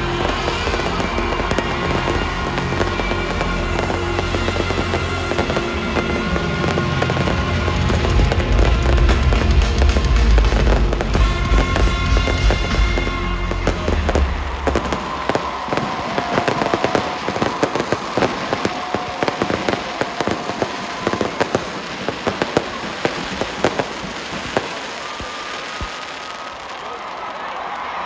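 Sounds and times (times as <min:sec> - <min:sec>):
music playing: 0:00.0 - 0:18.6.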